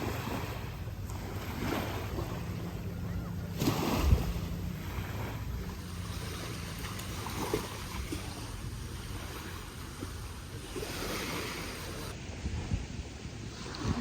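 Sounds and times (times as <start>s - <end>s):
surf washing: 0.0s - 14.0s
wind buffeting microphone: 0.0s - 14.0s.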